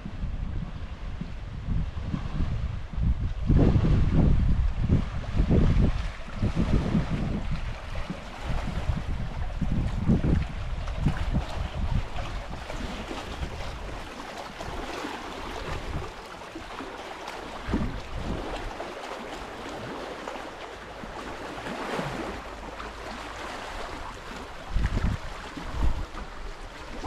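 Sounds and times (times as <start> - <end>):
wind gusting on microphone: 0.0 - 16.8, 17.5 - 18.8, 23.8 - 27.0.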